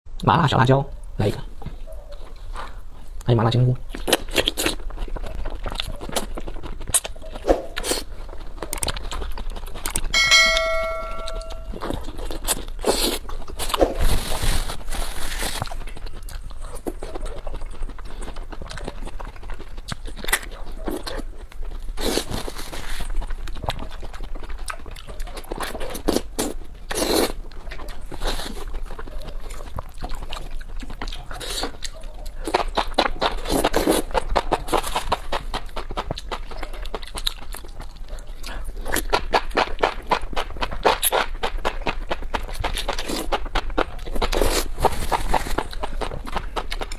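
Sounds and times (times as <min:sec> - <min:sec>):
food being handled and eaten: 0:00.2 - 0:46.9
bell-like ding: 0:10.2 - 0:11.8.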